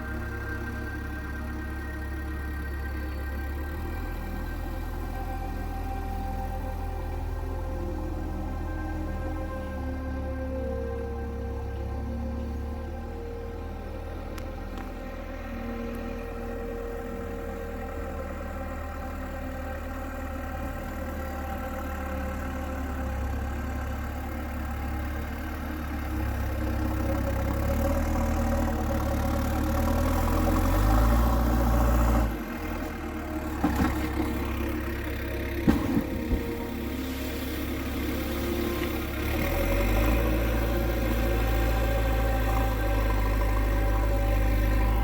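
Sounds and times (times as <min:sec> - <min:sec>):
diesel engine droning: 0:00.0 - 0:45.0
sharp knocks and clanks: 0:35.6 - 0:36.5.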